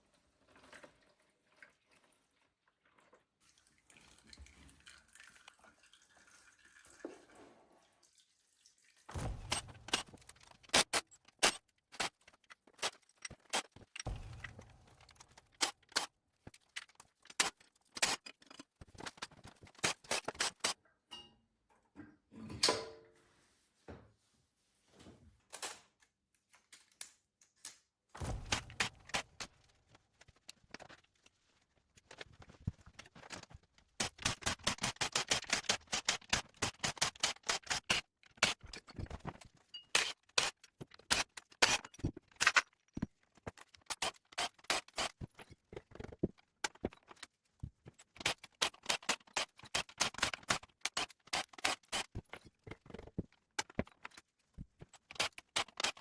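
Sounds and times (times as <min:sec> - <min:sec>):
hand tools clicking on metal: 0:15.0 - 0:20.8, 0:34.0 - 0:42.8, 0:43.4 - 0:47.3, 0:48.0 - 0:54.2, 0:54.8 - 0:56.0.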